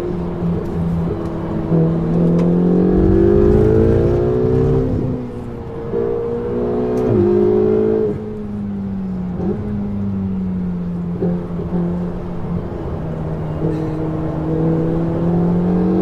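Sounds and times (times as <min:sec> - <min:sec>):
sports car engine revving: 0:01.6 - 0:08.4.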